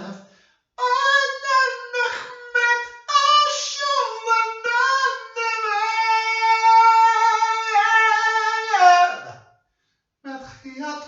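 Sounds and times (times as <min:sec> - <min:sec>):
person singing unaccompanied: 0:00.8 - 0:09.3.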